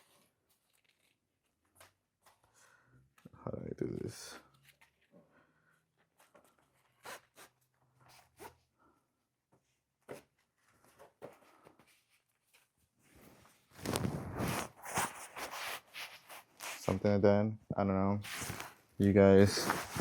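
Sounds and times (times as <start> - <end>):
zipper zipping: 13.8 - 15.8.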